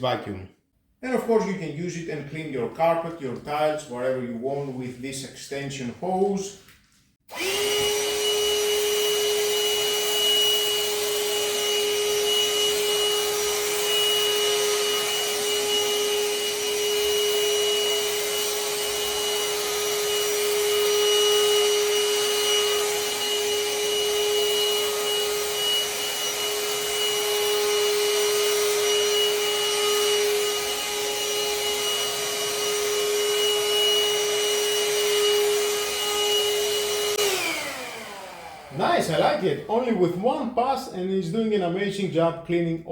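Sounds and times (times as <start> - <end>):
handheld vacuum cleaner whining: 7.3 - 40.3.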